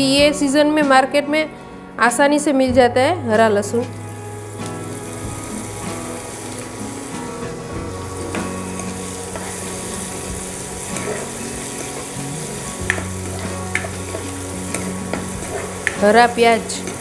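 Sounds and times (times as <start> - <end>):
garlic sizzling in hot oil: 3.9 - 17.0
spatula tapping on pan: 14.7 - 16.0.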